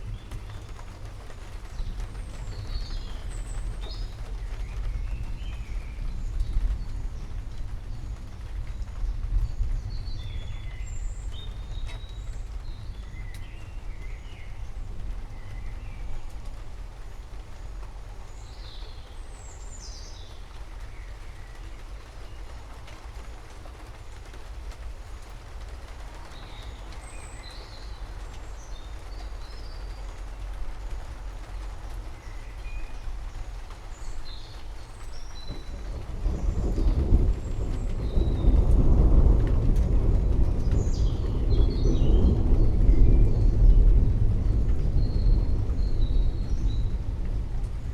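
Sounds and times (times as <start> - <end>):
low continuous rumble: 0.0 - 47.9
rain hissing: 0.0 - 47.9
steady deep rumble: 35.2 - 47.9.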